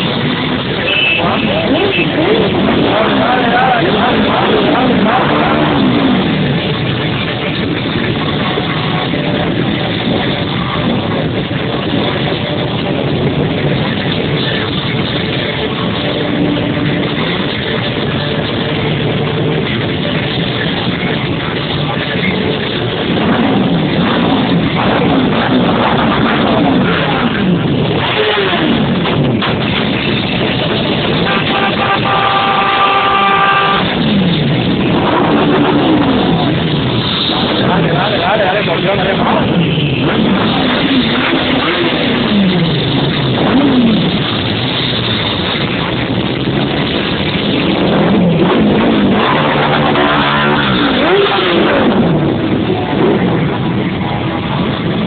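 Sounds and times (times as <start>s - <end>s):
many motorcycle engines running: 0.0s - 55.0s
vehicle horn: 0.8s - 2.4s, 31.2s - 34.0s.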